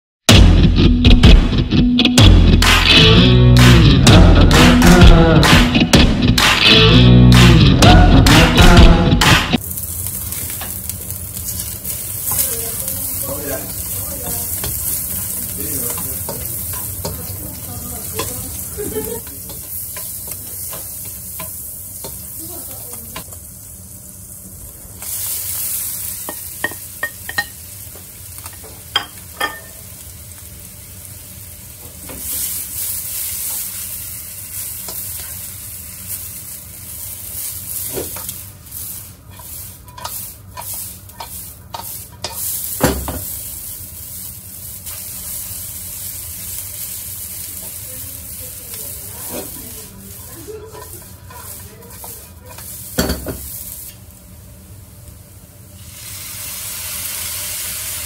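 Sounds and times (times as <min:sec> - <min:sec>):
noodles sizzling in hot oil: 0:09.6 - 0:58.0
spatula scraping and knocking pan: 0:39.3 - 0:43.4, 0:49.2 - 0:53.6.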